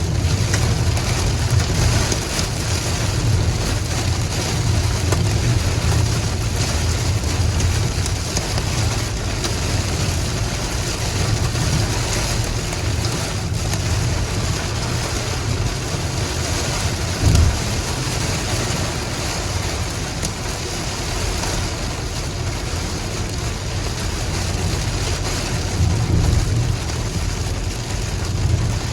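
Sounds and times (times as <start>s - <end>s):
heavy rain falling: 0.0s - 28.9s
low thump: 17.1s - 18.0s.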